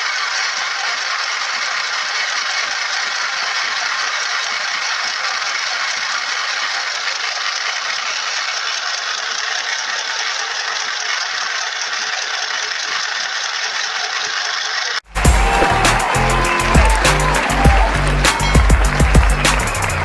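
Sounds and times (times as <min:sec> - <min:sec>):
sewing machine rattling: 0:00.0 - 0:15.0
music: 0:15.1 - 0:20.0.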